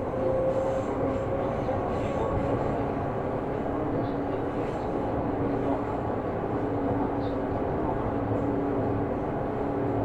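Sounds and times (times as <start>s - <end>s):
electric train rumbling: 0.0s - 2.4s.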